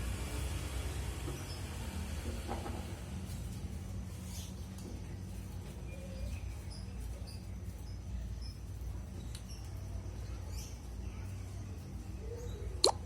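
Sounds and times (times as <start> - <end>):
faint high bird chirps: 5.7 - 13.0.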